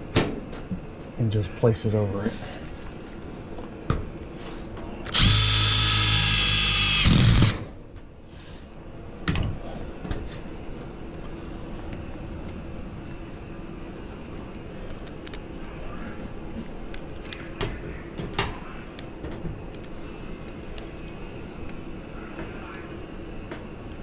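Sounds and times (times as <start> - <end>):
cordless power driver running: 5.1 - 7.7.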